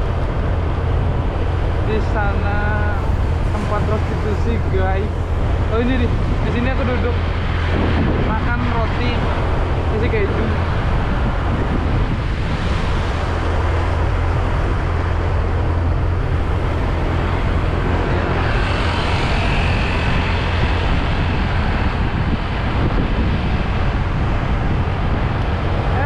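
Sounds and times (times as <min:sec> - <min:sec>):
wind rumble on microphone: 0:00.0 - 0:26.0
motorbike engine: 0:02.3 - 0:22.7.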